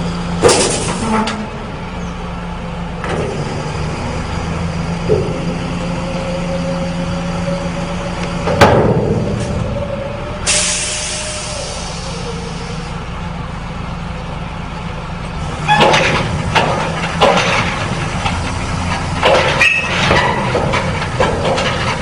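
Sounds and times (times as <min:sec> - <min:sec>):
truck engine running: 0:00.0 - 0:22.0
hiss of released air: 0:10.5 - 0:12.8.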